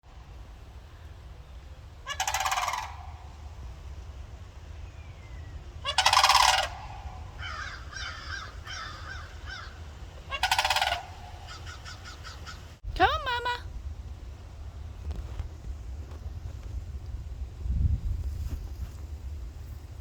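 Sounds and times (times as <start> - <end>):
cranes rattling bugle calls: 1.9 - 4.1, 5.8 - 13.4.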